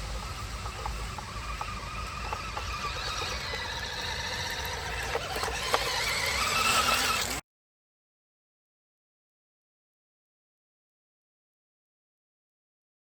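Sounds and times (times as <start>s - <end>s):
model car whining: 0.0s - 7.4s.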